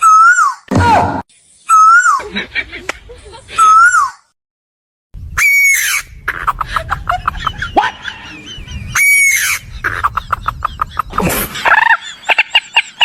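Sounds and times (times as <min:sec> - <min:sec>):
bird long pitched call: 0:05.3 - 0:06.2, 0:08.0 - 0:10.1.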